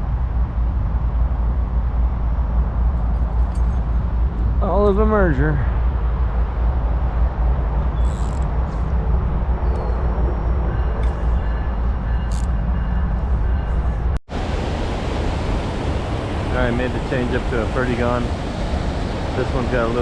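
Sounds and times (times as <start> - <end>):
creek water rushing: 14.3 - 20.0.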